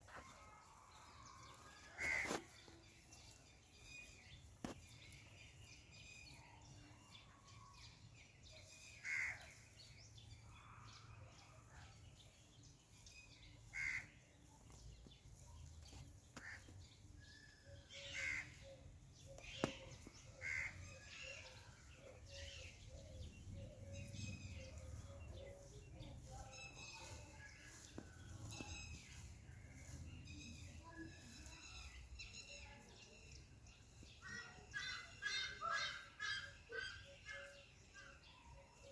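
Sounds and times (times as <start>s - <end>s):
peafowl calling: 1.9s - 2.6s, 18.0s - 18.8s, 20.4s - 21.2s, 34.3s - 37.6s.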